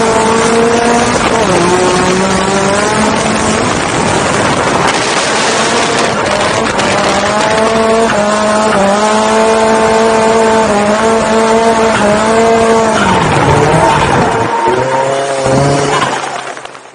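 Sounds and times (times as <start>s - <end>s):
car engine at high revs: 0.0s - 16.6s.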